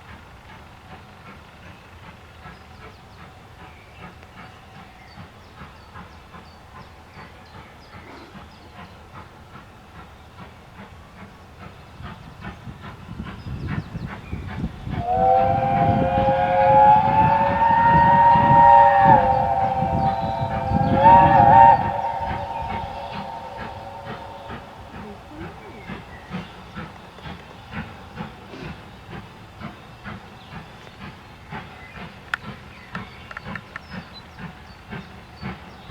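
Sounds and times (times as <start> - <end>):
steam locomotive exhaust beats: 0.0 - 35.9
steam whistle blast: 14.9 - 26.0.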